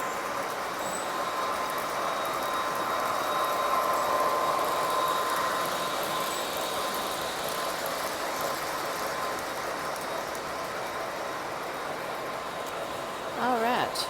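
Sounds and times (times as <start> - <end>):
model train wheels on rail: 1.5 - 12.2.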